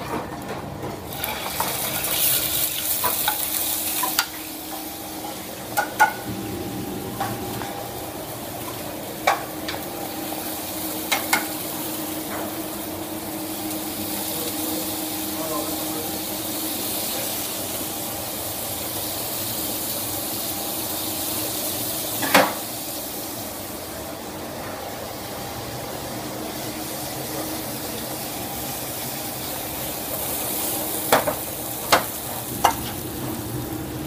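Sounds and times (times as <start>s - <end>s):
food sizzling in pans: 1.1s - 34.0s
faint hum: 3.9s - 10.8s
utensils knocking against pans: 5.8s - 6.3s.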